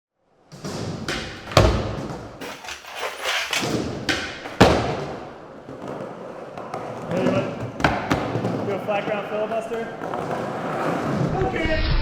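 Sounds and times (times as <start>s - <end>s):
skateboard heavy impacts: 0.5s - 11.4s.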